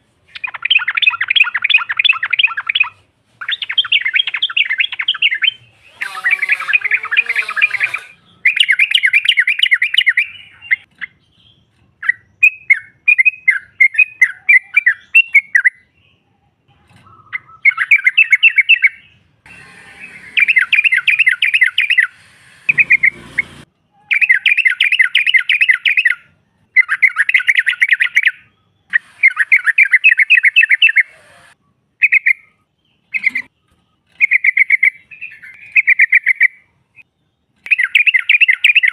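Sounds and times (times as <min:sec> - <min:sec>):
bulbul chattering: 0:17.1 - 0:26.1
brief noisy burst: 0:19.5 - 0:23.7.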